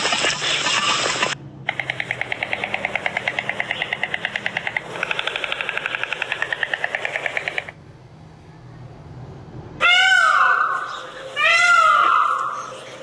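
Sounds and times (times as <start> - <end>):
stork bill-clattering rattle: 0.0 - 7.8
peacock call: 9.8 - 12.7.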